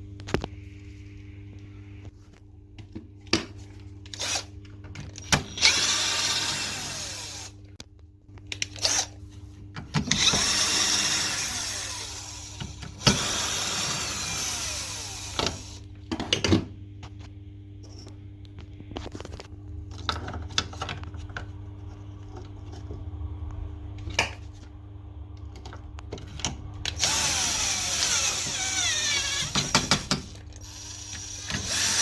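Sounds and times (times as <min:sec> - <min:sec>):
power drill running: 0:04.2 - 0:04.5, 0:05.2 - 0:07.6, 0:10.1 - 0:15.8, 0:26.9 - 0:32.0
parts clicking and knocking: 0:25.4 - 0:32.0.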